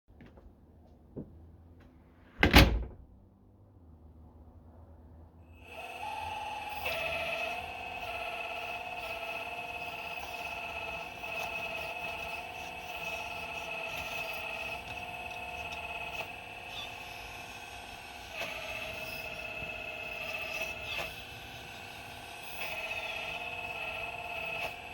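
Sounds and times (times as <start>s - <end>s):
excavator drive whining: 5.5s - 24.9s.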